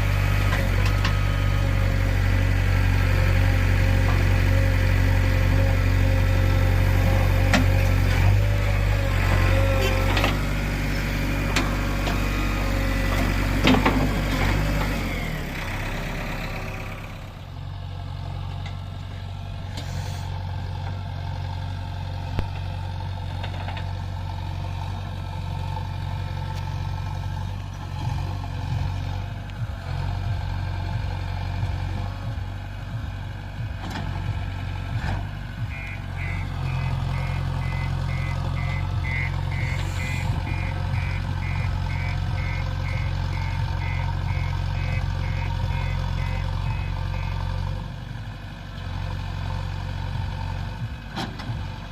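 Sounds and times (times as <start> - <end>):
diesel engine running: 0.0 - 51.9
reversing alarm beeping: 35.6 - 47.4.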